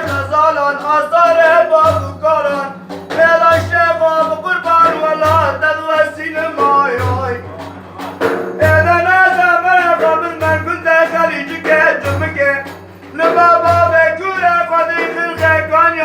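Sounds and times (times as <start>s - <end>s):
deep low beat: 0.0s - 16.0s
man singing praise song: 0.0s - 16.0s.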